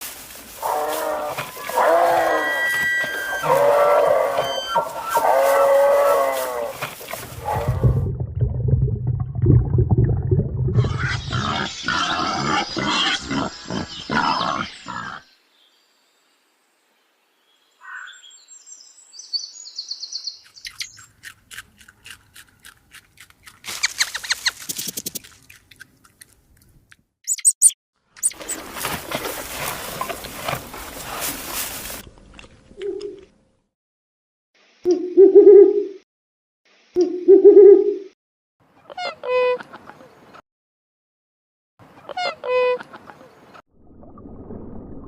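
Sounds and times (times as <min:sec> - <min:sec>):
low rumbling animal call: 0:00.6 - 0:08.3
high bird chirps: 0:17.8 - 0:21.2, 0:27.2 - 0:28.4
quick clicking sounds: 0:23.0 - 0:25.9.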